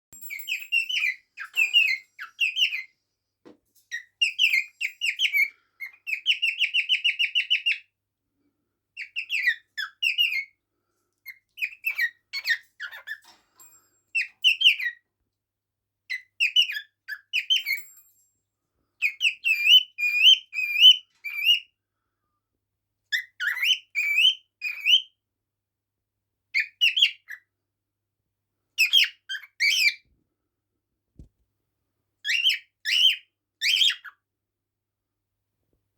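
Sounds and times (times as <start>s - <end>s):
bird chirping and whistling: 0.3s - 2.9s, 3.9s - 7.8s
bird trilling: 0.3s - 2.9s, 3.9s - 7.8s.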